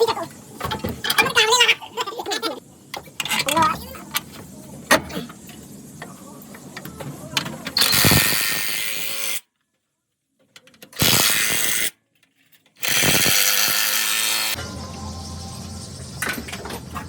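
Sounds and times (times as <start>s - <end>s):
hand tools clicking and knocking: 0.1s - 1.5s
power tool bursts: 7.8s - 9.4s, 11.0s - 11.9s, 12.8s - 14.7s.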